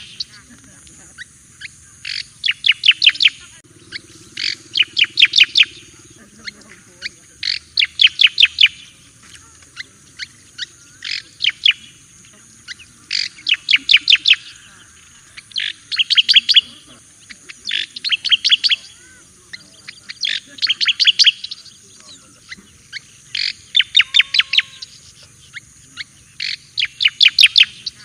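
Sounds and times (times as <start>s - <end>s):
bird singing sharp chirps: 0.0s - 28.0s.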